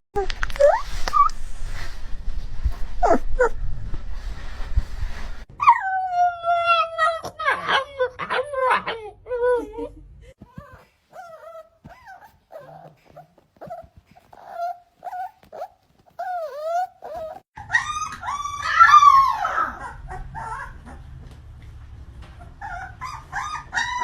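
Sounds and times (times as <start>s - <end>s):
dog whimpering and yipping: 0.4s - 1.4s, 3.0s - 3.6s, 5.6s - 21.1s, 22.4s - 24.0s
dog howling: 16.2s - 20.8s.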